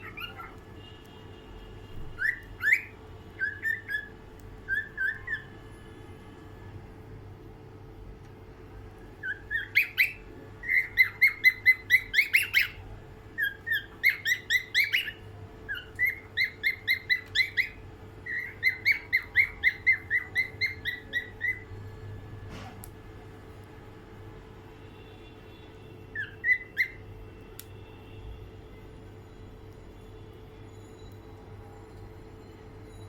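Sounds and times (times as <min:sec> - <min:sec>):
cockatiel whistling: 0:00.0 - 0:00.6, 0:02.2 - 0:05.6, 0:09.2 - 0:12.8, 0:13.4 - 0:21.7, 0:26.1 - 0:27.0.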